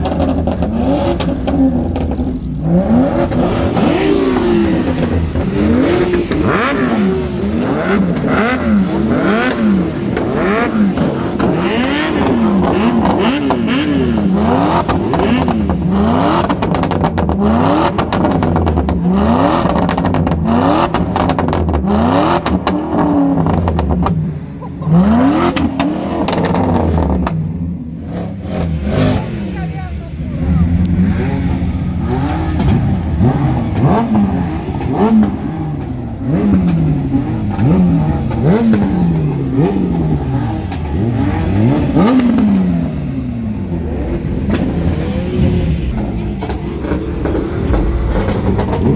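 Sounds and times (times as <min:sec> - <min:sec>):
exhaust pops and crackles: 0:00.0 - 0:42.6, 0:43.7 - 0:48.9
car engine revving: 0:00.0 - 0:48.9.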